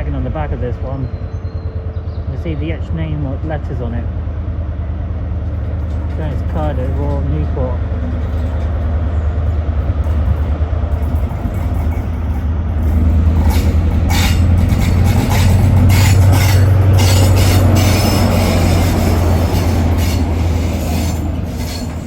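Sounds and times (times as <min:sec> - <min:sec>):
diesel train engine drone: 0:00.0 - 0:22.0
wheels clicking over rail joints: 0:04.5 - 0:22.0.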